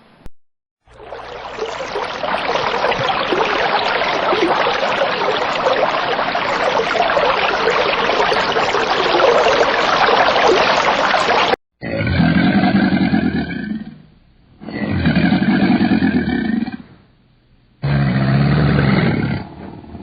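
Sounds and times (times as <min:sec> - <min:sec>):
water trickling and splashing: 0:00.8 - 0:11.6.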